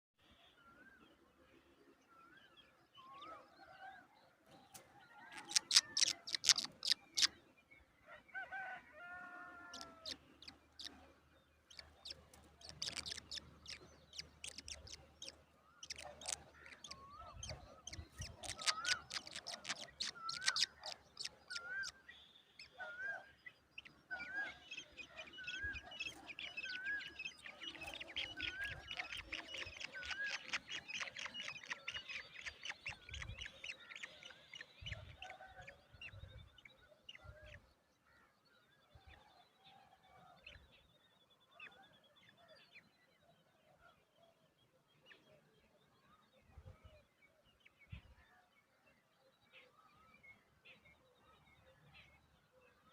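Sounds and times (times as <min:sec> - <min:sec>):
chicks chirping: 0:05.4 - 0:07.3, 0:11.7 - 0:21.7
lower bird calls: 0:09.6 - 0:22.1.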